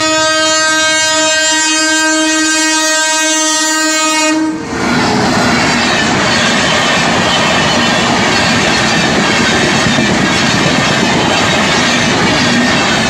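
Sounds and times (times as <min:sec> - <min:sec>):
locomotive horn blast: 0:00.0 - 0:04.8
train coaches rumbling past: 0:00.0 - 0:13.0.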